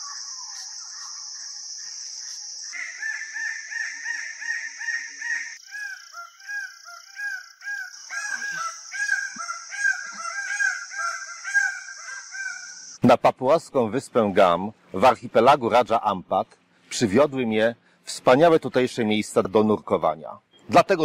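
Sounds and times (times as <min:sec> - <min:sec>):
birds calling loud notes: 0:02.3 - 0:13.0, 0:20.4 - 0:20.8.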